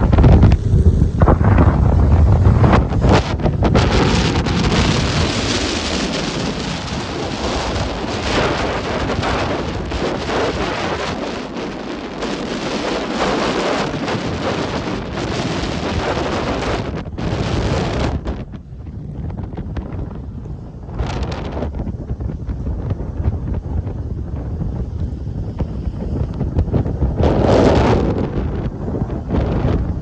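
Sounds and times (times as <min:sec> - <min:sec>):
surf breaking: 0:00.0 - 0:18.7
wind buffeting microphone: 0:00.0 - 0:30.0.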